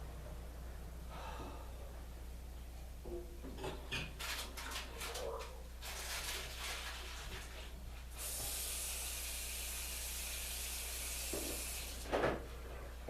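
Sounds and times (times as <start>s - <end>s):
steady high hiss: 8.1s - 12.1s.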